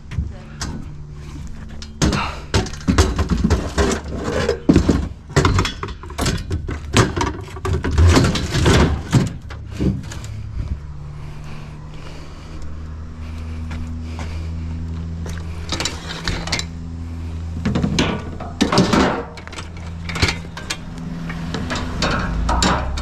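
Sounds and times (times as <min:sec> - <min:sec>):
vehicle engine humming: 0:00.0 - 0:23.0
scrap metal knocks and clatters: 0:00.6 - 0:10.6, 0:15.4 - 0:16.7, 0:17.6 - 0:23.0.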